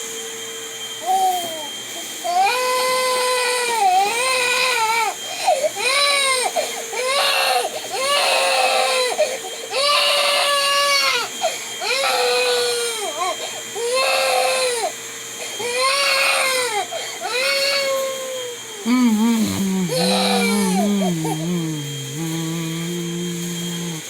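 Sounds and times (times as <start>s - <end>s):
vacuum cleaner humming: 0.0s - 24.0s
baby crying: 18.9s - 24.0s.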